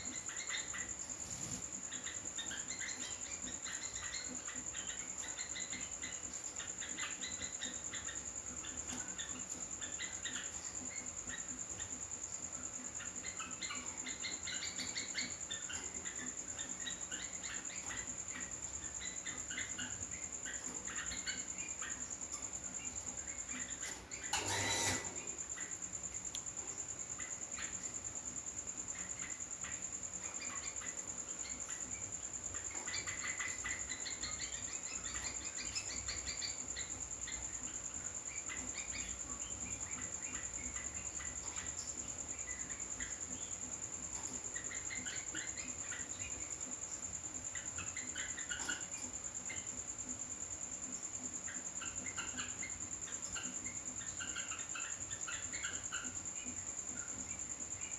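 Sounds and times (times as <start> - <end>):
bird chirping: 0.0 - 57.9
insect trill: 0.0 - 57.9.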